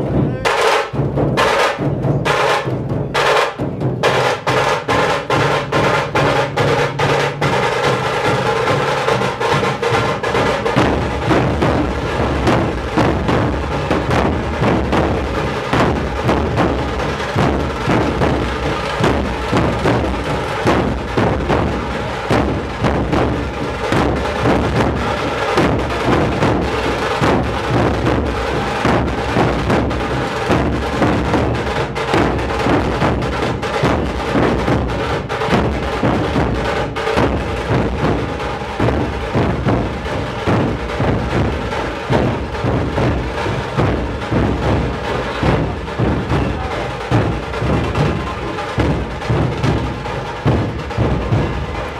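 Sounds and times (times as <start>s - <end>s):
barrel drums in driving rhythm: 0.0s - 51.9s.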